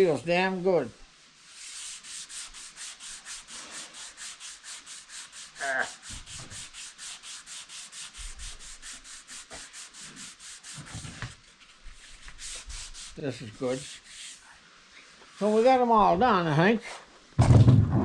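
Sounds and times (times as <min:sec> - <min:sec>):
sandpaper rubbing on surface: 0:01.4 - 0:14.5, 0:15.3 - 0:15.8.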